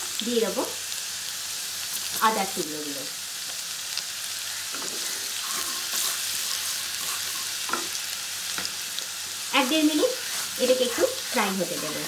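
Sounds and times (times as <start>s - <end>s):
garlic sizzling in hot oil: 0.0s - 12.0s
wooden spatula stirring in pan: 4.7s - 8.0s, 9.6s - 12.0s.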